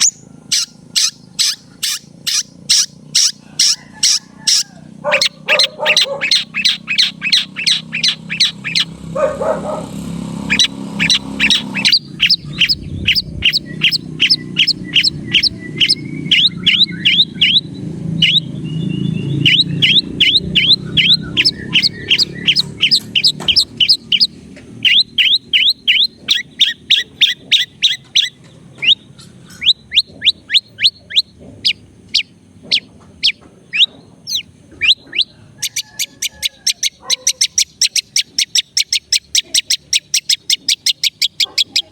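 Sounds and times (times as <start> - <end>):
shrike chirping: 0.0 - 9.1, 10.4 - 41.8.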